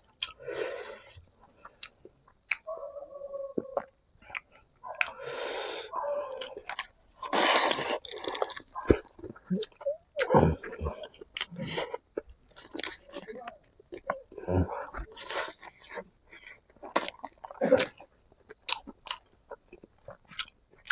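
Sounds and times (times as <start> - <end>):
wet chewing and biting: 3.6 - 5.3, 6.2 - 20.9.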